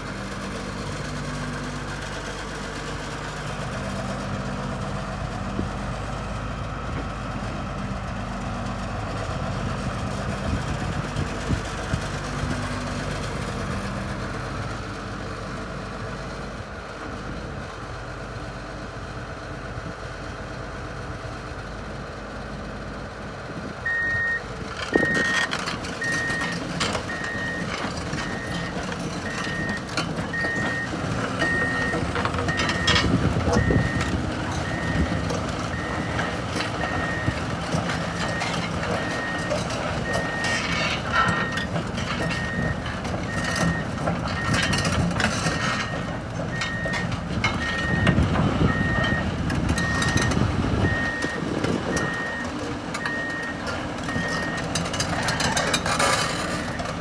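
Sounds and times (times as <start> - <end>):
excavator diesel engine running: 0.0 - 57.0
travel alarm beeping: 23.9 - 24.4, 29.3 - 37.4.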